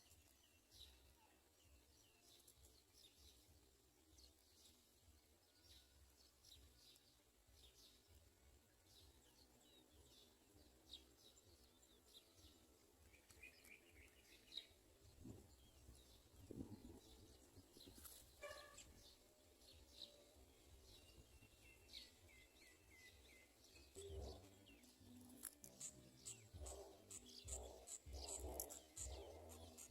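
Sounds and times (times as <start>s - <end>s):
faint bird chirps: 8.9s - 29.9s.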